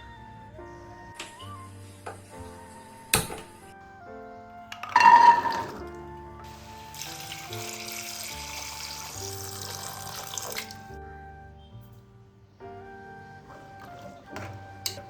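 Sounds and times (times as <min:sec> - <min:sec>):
background music: 0:00.0 - 0:15.0
water running from a tap: 0:05.0 - 0:10.9.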